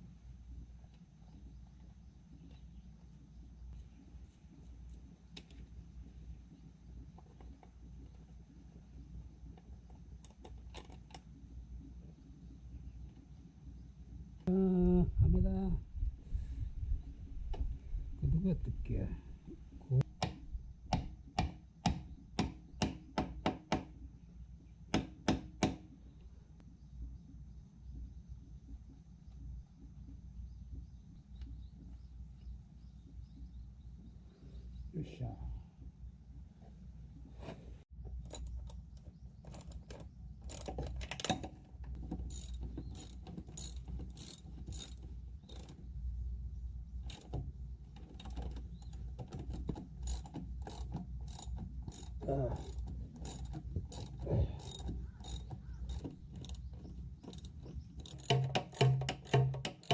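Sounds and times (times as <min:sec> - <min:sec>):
ratchet wrench clicking: 0:42.2 - 0:45.8, 0:47.1 - 0:47.4, 0:48.2 - 0:56.7, 0:57.3 - 0:59.9
hammer tapping: 0:58.1 - 0:59.9.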